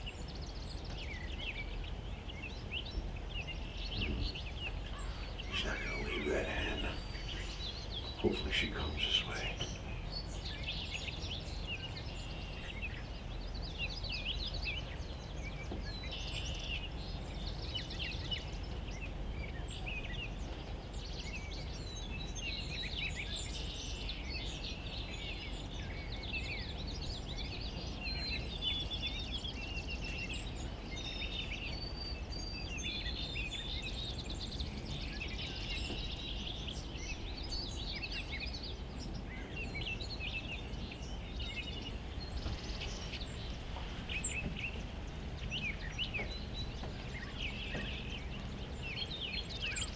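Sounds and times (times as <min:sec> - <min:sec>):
low background rumble: 0:00.0 - 0:22.5
songbirds chirping and singing: 0:00.0 - 0:49.9.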